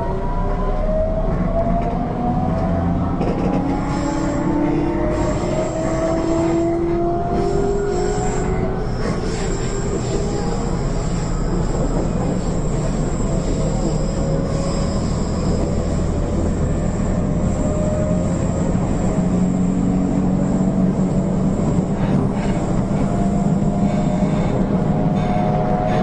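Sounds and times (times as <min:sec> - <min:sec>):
train wheels rumbling: 0:00.8 - 0:26.0.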